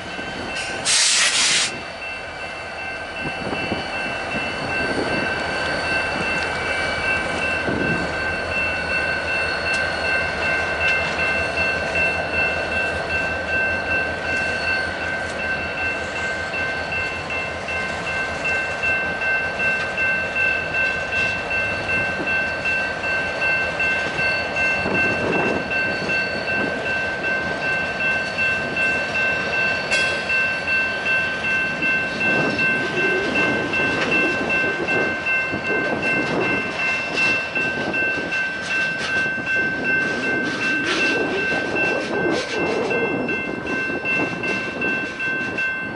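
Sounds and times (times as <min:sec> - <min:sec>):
steady high-pitched tones: 0:01.7 - 0:45.9
train wheels clattering on rails: 0:03.2 - 0:45.9.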